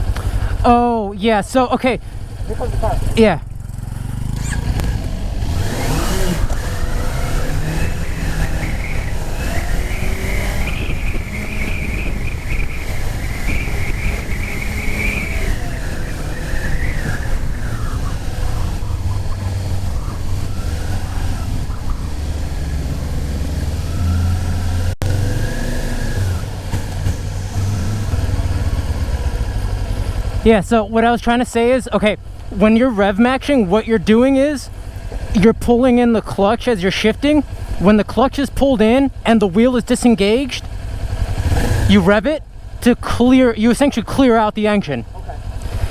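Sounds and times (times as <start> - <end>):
high whine: 0.0 - 33.0
motorcycle engine and road rumble: 0.0 - 45.9.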